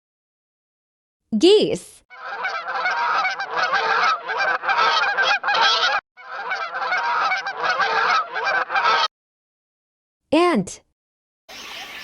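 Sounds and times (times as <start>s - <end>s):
geese honking: 2.1s - 9.1s.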